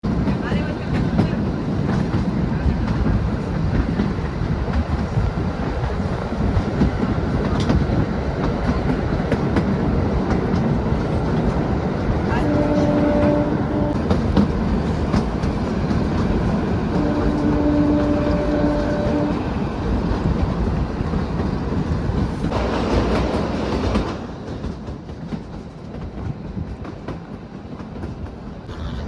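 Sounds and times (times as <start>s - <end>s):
train wheels clattering on rails: 0.0s - 28.7s
train horn: 12.3s - 14.1s, 16.9s - 19.5s.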